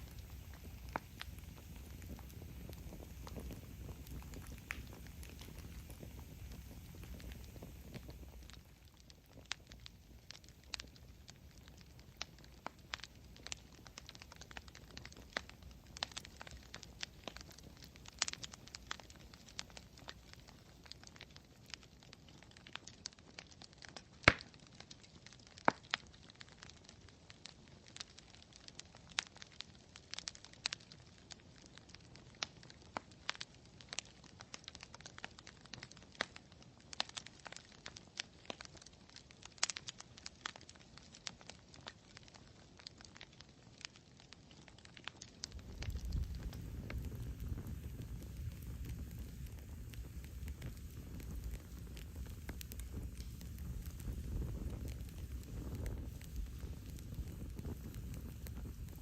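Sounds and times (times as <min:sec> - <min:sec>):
faint hiss: 0:00.0 - 0:22.6, 0:45.2 - 0:59.0
campfire crackling: 0:00.0 - 0:59.0.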